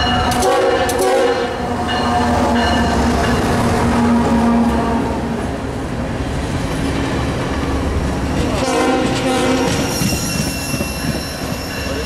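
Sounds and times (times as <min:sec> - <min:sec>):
train wheels rumbling on rails: 0:00.0 - 0:12.0
high wheel squeal: 0:09.3 - 0:12.0.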